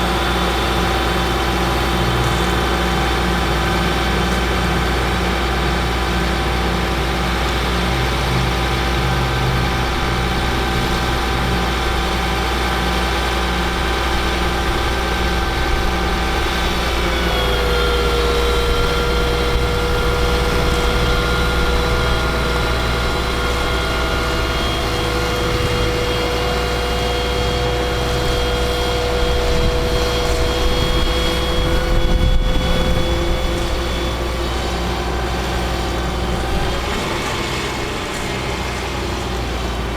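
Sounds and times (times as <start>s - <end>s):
diesel truck engine running: 0.0s - 39.9s
whining tone: 8.5s - 39.0s.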